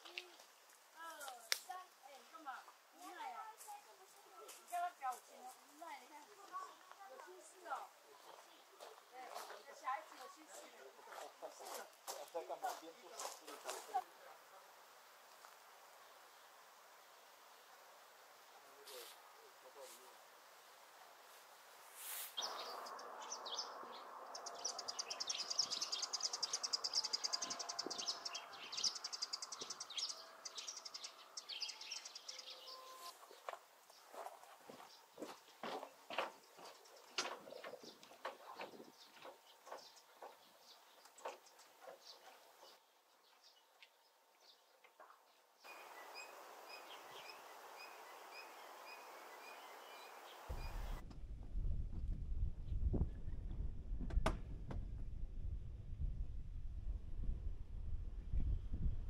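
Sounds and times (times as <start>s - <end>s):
steady hiss: 14.4s - 22.9s
birds chirping and trilling: 22.4s - 51.0s
wind rumble on microphone: 50.5s - 59.0s.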